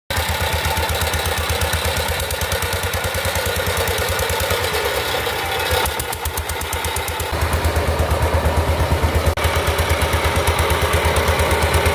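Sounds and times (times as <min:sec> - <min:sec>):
power tiller engine chugging: 0:00.1 - 0:11.9.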